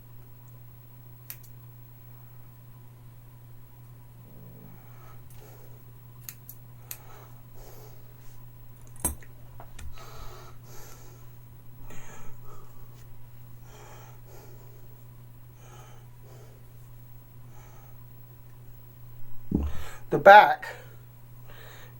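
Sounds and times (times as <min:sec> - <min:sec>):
steady low hum: 0:00.0 - 0:21.9
scissors snipping hair: 0:01.2 - 0:01.6.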